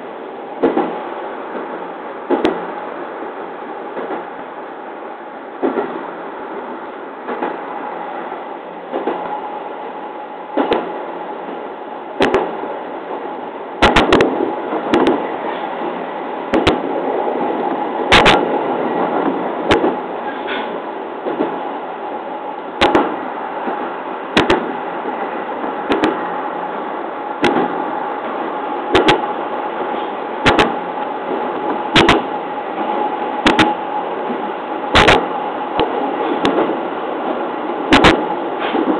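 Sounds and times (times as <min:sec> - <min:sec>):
train running noise: 0:00.0 - 0:38.9
wheels clacking over rail joints: 0:13.8 - 0:21.7.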